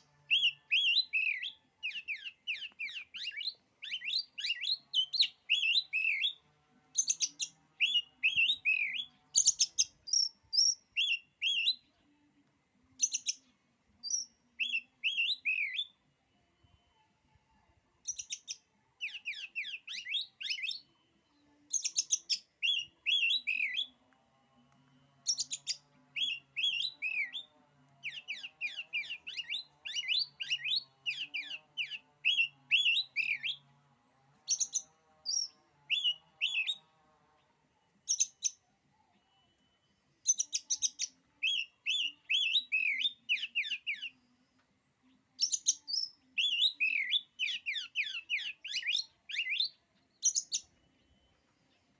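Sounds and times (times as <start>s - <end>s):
bird chirps and whistles: 21.8s - 24.0s, 40.2s - 44.2s, 45.4s - 50.7s.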